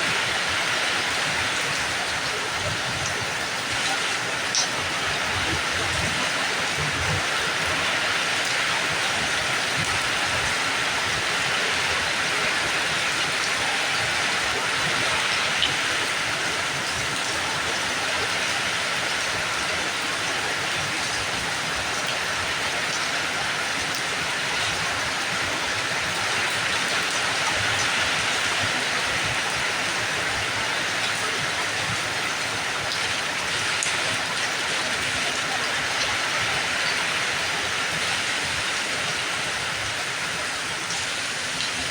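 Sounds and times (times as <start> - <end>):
steady rain hiss: 0.0 - 41.9.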